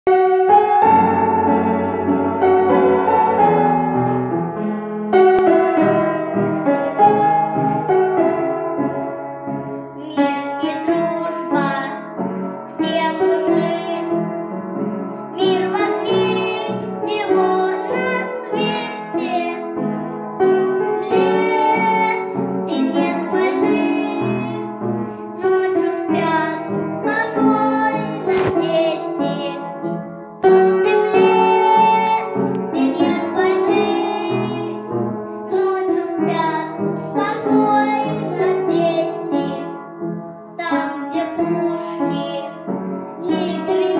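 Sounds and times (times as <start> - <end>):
instrumental backing track: 0.1 - 10.4
girl singing: 9.5 - 14.4, 15.1 - 43.9.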